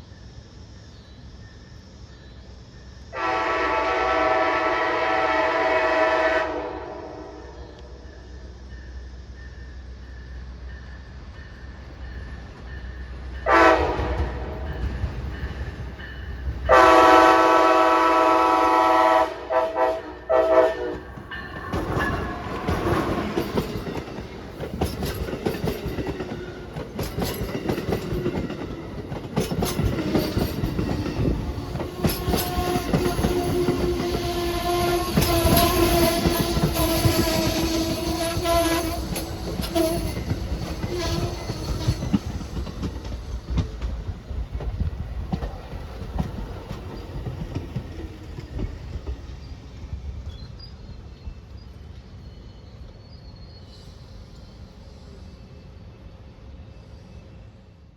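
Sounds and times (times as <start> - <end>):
train air horn blasts: 3.1 - 7.5, 13.4 - 14.7, 16.6 - 21.1, 31.8 - 40.2, 40.8 - 42.1
wheels clicking over rail joints: 20.9 - 49.5.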